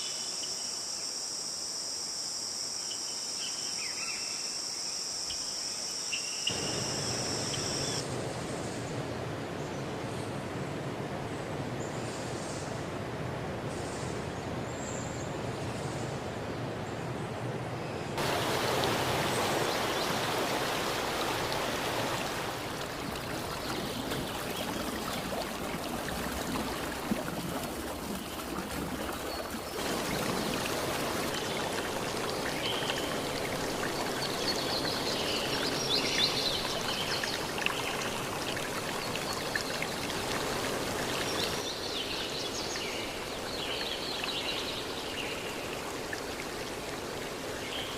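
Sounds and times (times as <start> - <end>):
stream flowing over rocks: 18.2 - 47.9.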